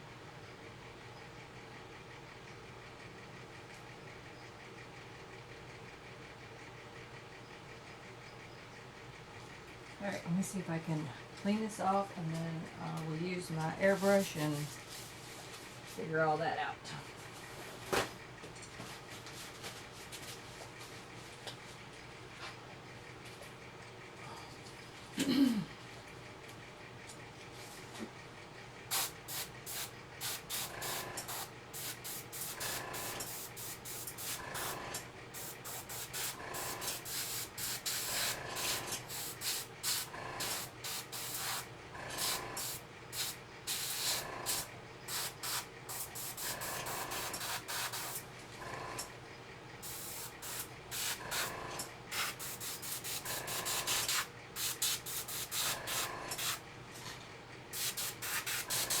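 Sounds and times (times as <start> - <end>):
faint steady hum: 0.0 - 59.0
airbrush hissing bursts: 28.9 - 34.8, 35.4 - 48.2, 49.8 - 51.5, 52.1 - 56.6, 57.8 - 59.0.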